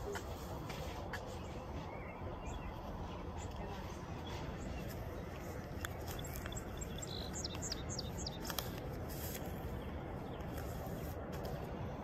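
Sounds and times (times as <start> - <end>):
background noise: 0.0 - 12.0
birds chirping: 0.0 - 12.0.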